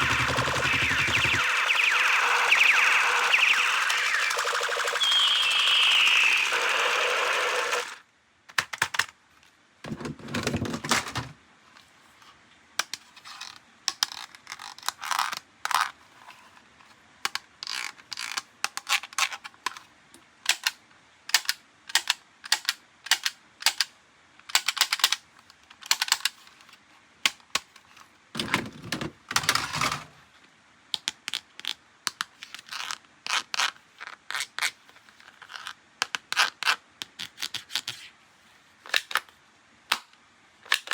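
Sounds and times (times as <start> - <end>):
siren-like electronic tone: 0.0 - 8.0.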